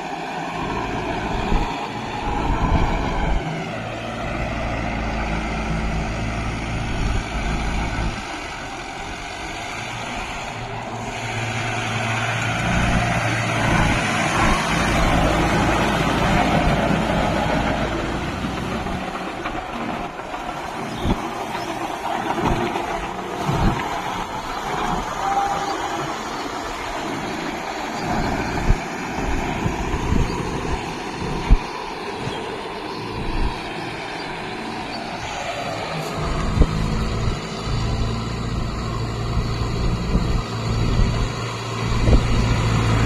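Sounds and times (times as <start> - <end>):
tractor diesel engine under load: 0.0 - 43.0.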